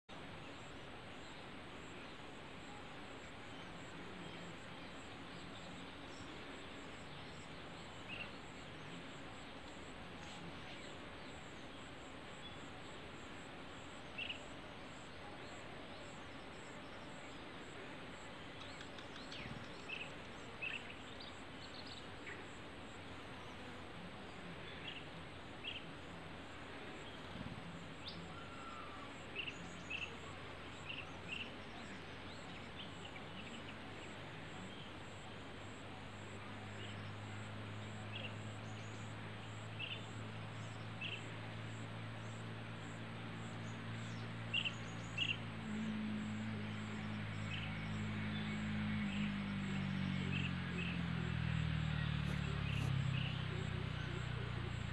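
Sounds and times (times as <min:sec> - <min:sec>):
background hiss: 0:00.1 - 0:54.9
low engine drone: 0:39.7 - 0:54.9.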